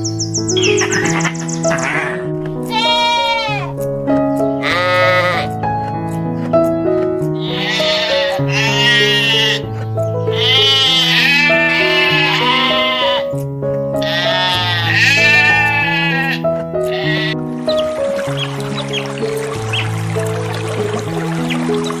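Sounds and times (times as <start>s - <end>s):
slow background music: 0.0s - 22.0s
sheep bleating: 0.8s - 3.8s, 4.6s - 6.0s, 6.6s - 13.4s, 14.0s - 17.4s.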